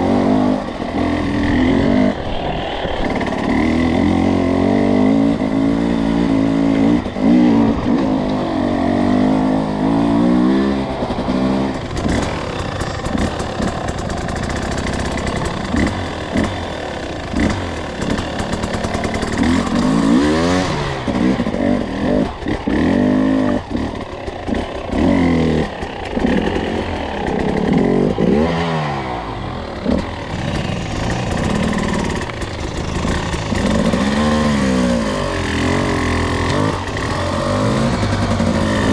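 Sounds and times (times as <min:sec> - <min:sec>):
dirt bike engine revving: 0:00.0 - 0:38.9
rattling clatter: 0:11.0 - 0:16.5, 0:29.9 - 0:34.7.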